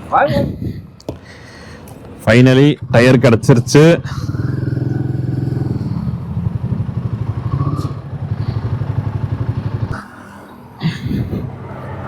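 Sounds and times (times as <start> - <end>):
motorcycle engine idling: 4.2 - 10.0.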